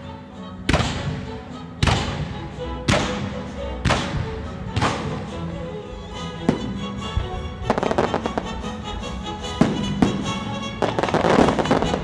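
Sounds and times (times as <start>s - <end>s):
orchestra playing sustained notes: 0.0s - 12.0s
fireworks banging: 0.7s - 5.5s, 6.4s - 8.7s, 9.4s - 12.0s
fireworks crackling: 6.4s - 12.0s.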